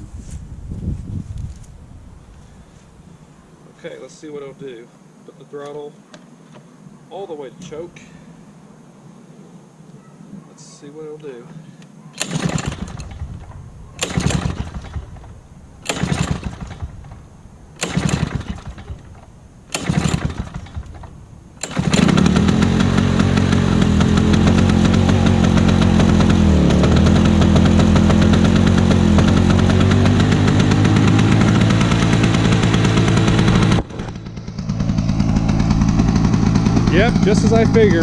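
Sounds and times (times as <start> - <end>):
mower engine running: 12.2 - 38.0
recoil starter pulls: 12.2 - 38.0.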